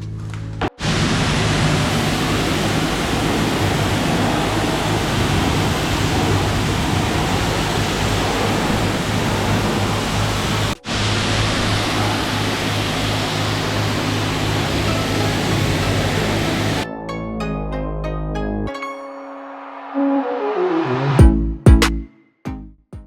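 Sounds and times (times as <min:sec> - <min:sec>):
high-pressure water spray hissing: 0:00.8 - 0:16.8
low pump hum: 0:01.0 - 0:16.8.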